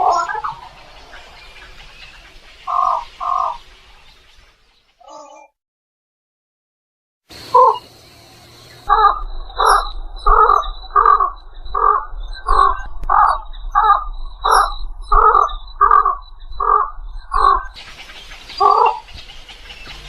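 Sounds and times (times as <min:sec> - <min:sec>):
egret croaking calls: 0:00.0 - 0:03.6, 0:07.5 - 0:07.9, 0:08.8 - 0:20.0.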